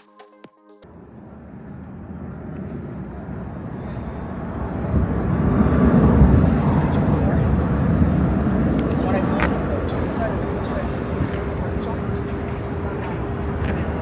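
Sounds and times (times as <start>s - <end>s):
electronic music: 0.0s - 0.9s
low city rumble: 0.8s - 14.0s.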